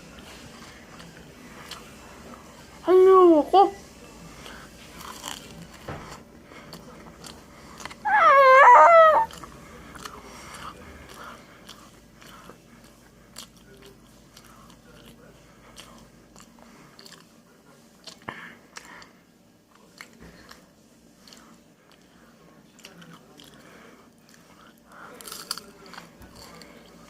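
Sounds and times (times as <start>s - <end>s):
crunchy chewing: 0.2s - 2.5s, 4.2s - 27.0s
high-pitched wavering voice: 8.1s - 9.3s.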